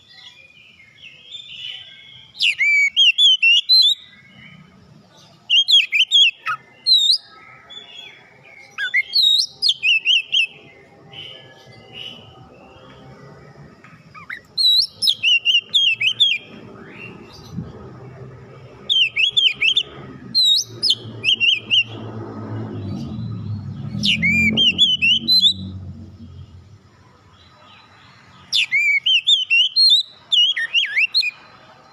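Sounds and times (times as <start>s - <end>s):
bird singing whistled phrases: 1.1s - 4.2s, 8.7s - 12.3s, 14.1s - 17.2s, 18.9s - 22.0s, 22.8s - 25.8s, 28.6s - 31.4s
low rumble: 19.8s - 26.9s.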